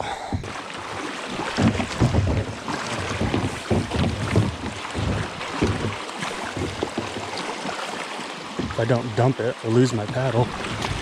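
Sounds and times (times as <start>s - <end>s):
water rushing around kayak: 0.0s - 11.0s
wind buffeting microphone: 1.4s - 7.2s.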